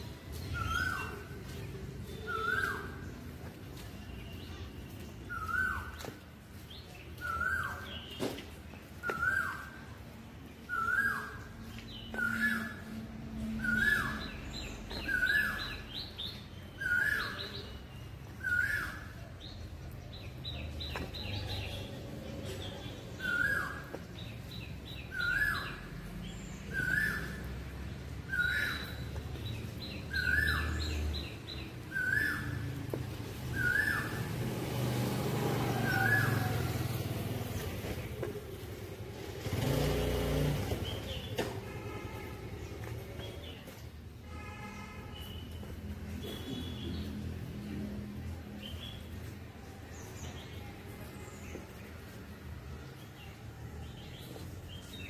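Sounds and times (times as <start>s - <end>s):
birds twittering in high trills: 0.3s - 3.2s, 4.0s - 6.2s, 10.6s - 19.2s, 22.6s - 27.6s, 28.2s - 32.7s, 33.4s - 34.4s.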